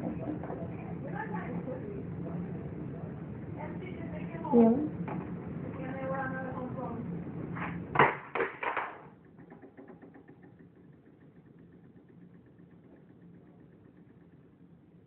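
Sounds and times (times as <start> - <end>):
sharp knocks: 7.9 - 11.3
small motor ticking: 9.2 - 15.0.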